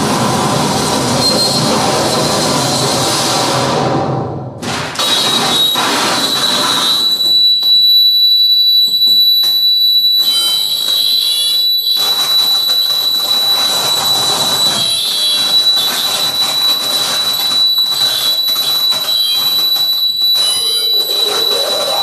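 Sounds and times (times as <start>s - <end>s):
screeching harsh noise: 0.1s - 4.0s, 4.9s - 22.0s
piercing high tone: 5.0s - 22.0s.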